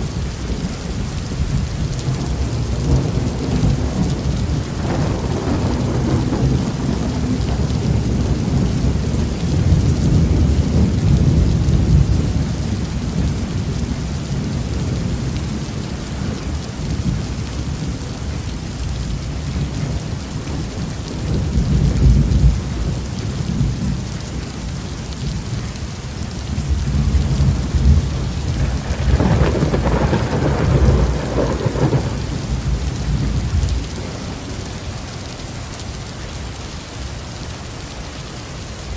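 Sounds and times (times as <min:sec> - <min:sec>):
heavy rain: 0:00.0 - 0:38.9
rolling thunder: 0:01.4 - 0:18.4, 0:26.5 - 0:34.8.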